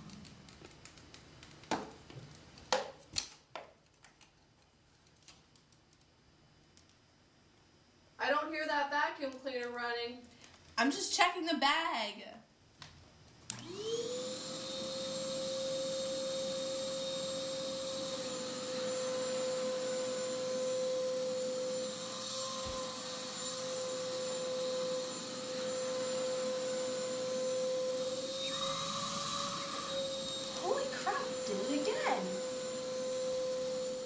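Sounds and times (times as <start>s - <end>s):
vacuum cleaner motor whine: 13.5s - 34.0s.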